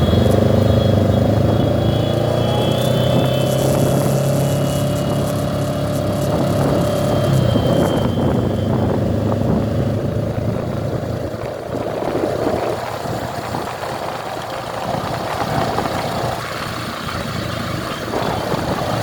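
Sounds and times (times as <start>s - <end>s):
motorcycle engines running: 0.0s - 19.0s.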